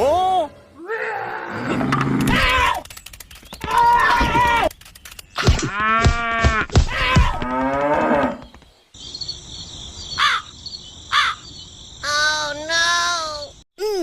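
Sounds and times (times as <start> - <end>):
crickets chirring: 2.4 - 5.4, 7.5 - 13.6
crow cawing: 10.2 - 10.5, 11.1 - 11.5.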